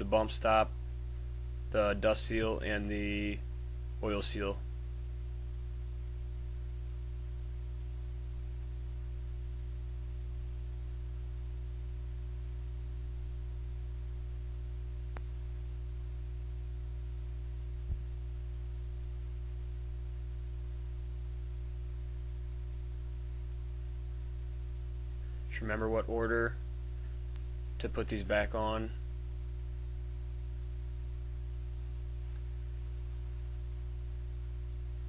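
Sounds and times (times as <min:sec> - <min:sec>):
low electrical hum: 0:00.0 - 0:35.0
faint click: 0:15.1 - 0:15.4, 0:27.3 - 0:27.5.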